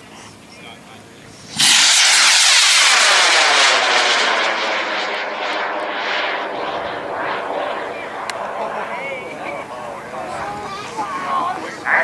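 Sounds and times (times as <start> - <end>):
rocket motor hissing: 1.2 - 5.8.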